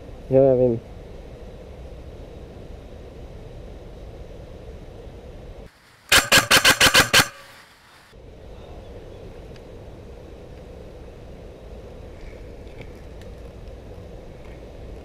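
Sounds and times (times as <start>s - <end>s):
low outdoor background: 0.0s - 15.0s
airsoft rifle burst firing: 6.1s - 7.7s.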